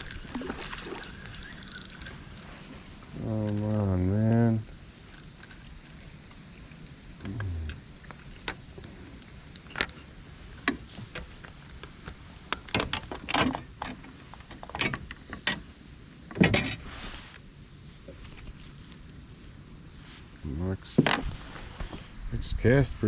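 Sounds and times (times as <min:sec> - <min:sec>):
fishing gear clicking and knocking: 0:00.0 - 0:02.5, 0:06.8 - 0:13.3.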